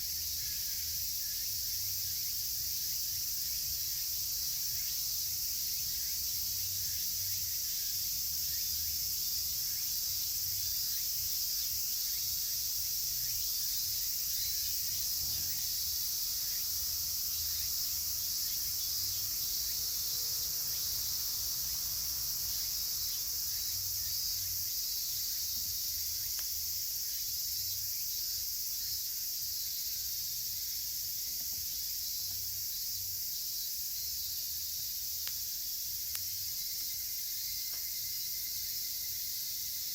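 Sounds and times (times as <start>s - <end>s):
cicadas chorus: 0.0s - 39.9s
campfire crackles: 26.0s - 26.8s, 34.7s - 37.8s.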